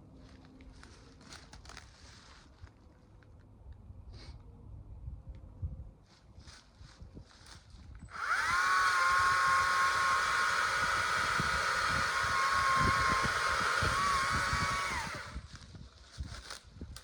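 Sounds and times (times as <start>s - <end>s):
faint rustles: 0.1s - 3.5s
chainsaw whining at high speed: 8.1s - 15.5s.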